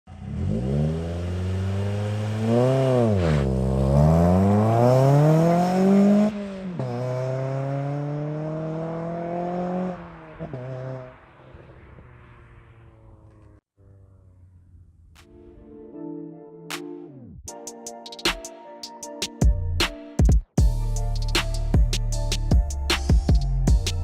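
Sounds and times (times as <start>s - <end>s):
car engine accelerating hard: 0.1s - 15.0s.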